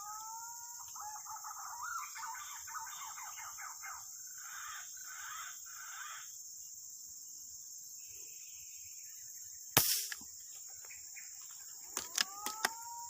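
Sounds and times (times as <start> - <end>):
high drone of insects: 0.0 - 13.0
air rifle shot: 9.8 - 10.2.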